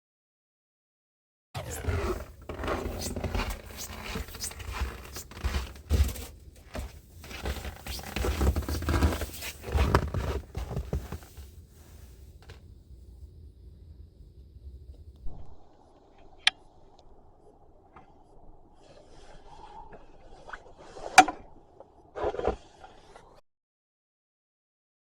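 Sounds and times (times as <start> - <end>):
crunching and scraping in snow: 1.6 - 12.6.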